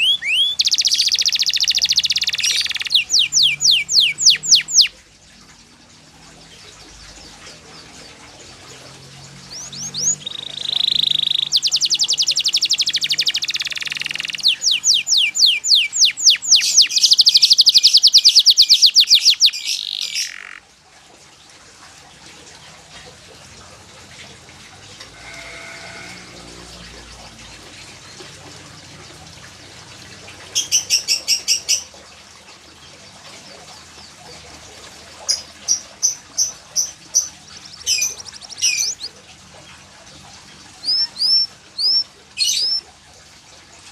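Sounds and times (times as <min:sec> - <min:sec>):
canary singing trills: 0:00.0 - 0:05.0, 0:09.2 - 0:20.7, 0:35.2 - 0:39.2, 0:40.7 - 0:42.9.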